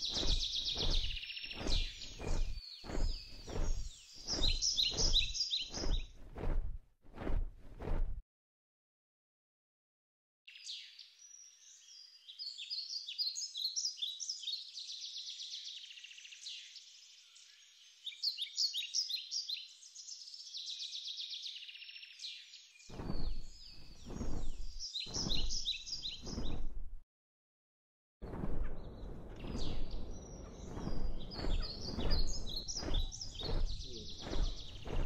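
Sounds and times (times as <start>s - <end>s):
songbirds chirping and twittering: 0.0s - 6.6s, 10.5s - 26.8s, 28.2s - 35.0s
low rumbling bursts: 0.0s - 8.2s, 28.2s - 35.0s.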